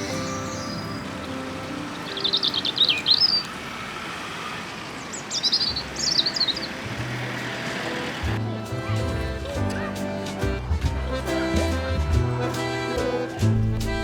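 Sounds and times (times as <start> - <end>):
songbird trilling: 0.0 - 4.0, 4.8 - 7.6.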